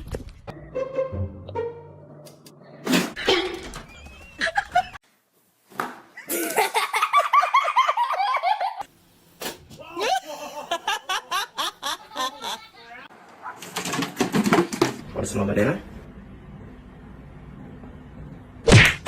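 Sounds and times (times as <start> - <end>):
high-pitched laughter: 9.9 - 13.1.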